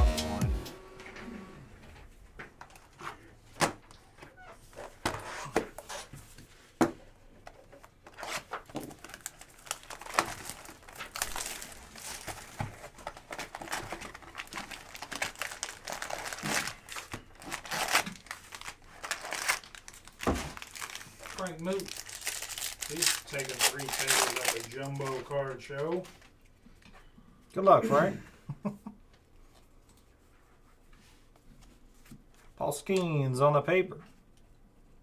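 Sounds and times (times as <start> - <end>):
clicks and rustles of handling: 2.3 - 27.1
foil wrappers tearing and crinkling: 8.1 - 25.5.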